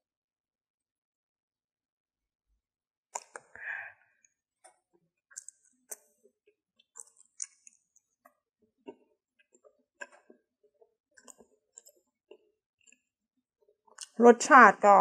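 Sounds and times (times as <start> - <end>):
wet mouth chewing sounds: 3.2 - 3.4, 5.3 - 6.1, 6.8 - 7.8, 11.2 - 13.0, 14.0 - 14.2.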